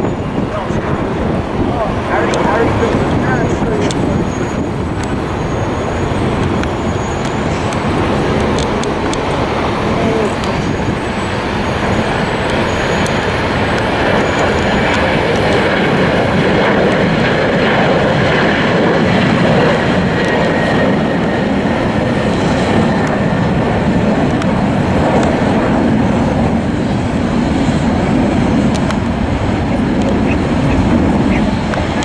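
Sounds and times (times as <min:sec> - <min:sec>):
jet engines at takeoff: 0:00.0 - 0:32.0.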